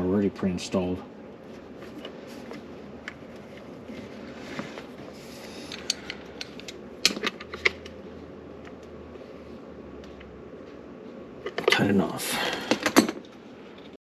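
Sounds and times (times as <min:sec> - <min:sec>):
tools and metal parts clicking: 0:05.7 - 0:07.9.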